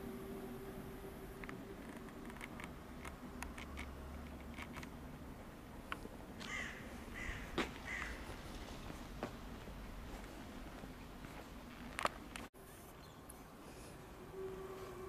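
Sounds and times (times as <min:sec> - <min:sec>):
train rumbling: 0:00.0 - 0:12.5, 0:13.5 - 0:15.0
bird cawing: 0:06.4 - 0:08.3.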